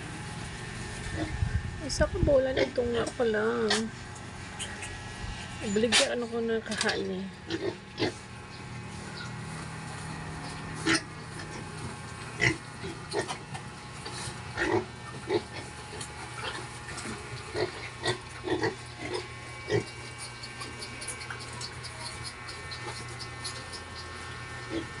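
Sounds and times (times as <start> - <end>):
piglets grunting: 7.4 - 8.3, 10.8 - 25.0.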